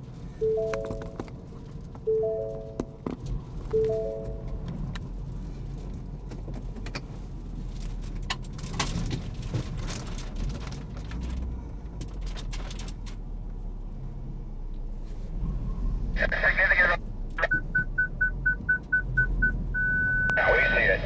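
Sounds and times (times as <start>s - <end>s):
car engine and road rumble: 0.0s - 21.0s
small clicks and rattles: 7.7s - 13.2s.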